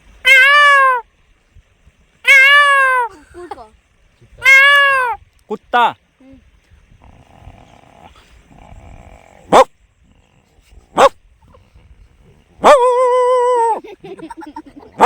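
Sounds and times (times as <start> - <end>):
man imitating dog barks: 9.5 - 9.7, 10.9 - 11.2, 12.6 - 13.8.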